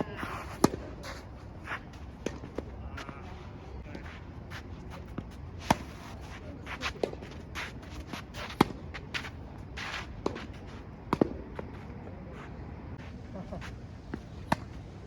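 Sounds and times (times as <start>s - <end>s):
shoes scuffing on court: 0.0s - 14.8s
racket hitting tennis ball: 0.4s - 1.2s, 5.1s - 9.3s
tennis ball bouncing: 11.1s - 11.4s, 14.0s - 14.8s.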